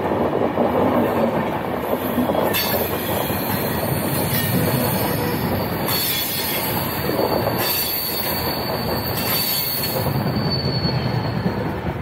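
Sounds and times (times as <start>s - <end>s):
train wheels rumbling on rail: 0.0s - 12.0s
high wheel squeal: 2.0s - 11.8s.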